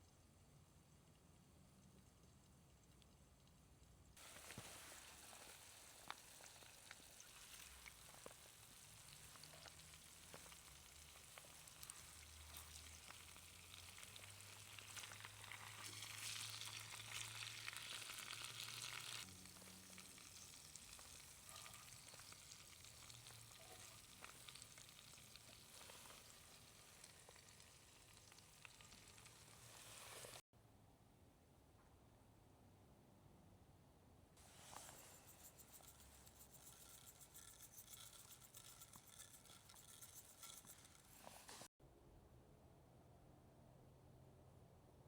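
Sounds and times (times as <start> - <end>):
small crackles: 1.0 - 30.4
chicken wings sizzling: 4.2 - 30.4.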